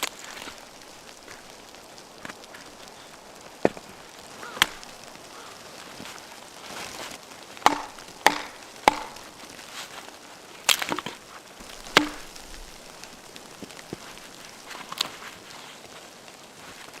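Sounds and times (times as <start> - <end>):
axe chopping firewood: 4.5 - 5.0, 7.6 - 9.4, 10.7 - 12.7.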